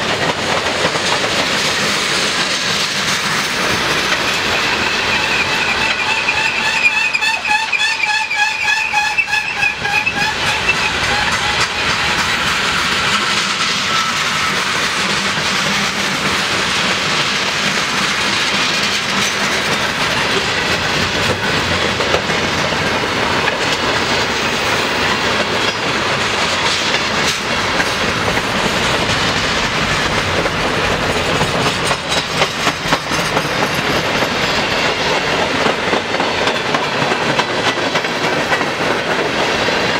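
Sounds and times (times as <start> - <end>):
train wheels rumbling on rails: 0.0 - 39.9
high wheel squeal: 4.4 - 15.0.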